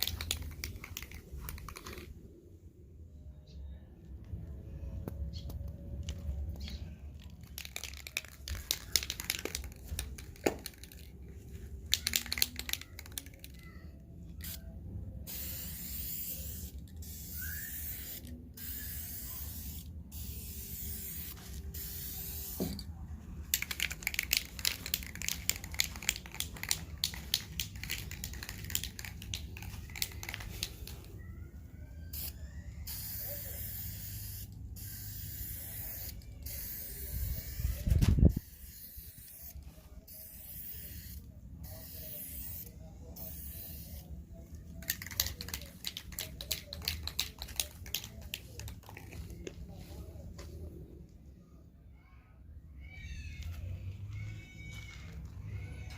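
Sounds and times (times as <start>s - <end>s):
spray can hissing: 0.0s - 2.1s, 7.4s - 11.1s, 11.8s - 13.5s, 15.3s - 22.8s, 23.5s - 31.1s, 32.1s - 44.0s, 44.8s - 49.2s.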